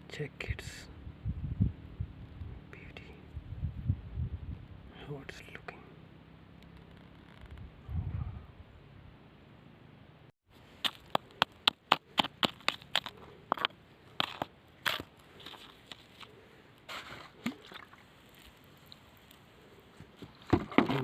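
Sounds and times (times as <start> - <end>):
stones clicking together: 10.8 - 16.3.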